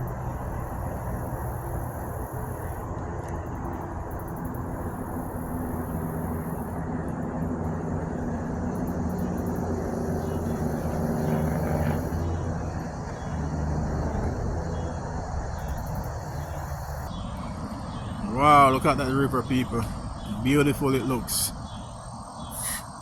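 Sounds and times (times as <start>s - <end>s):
vehicle engine running: 0.0s - 22.3s.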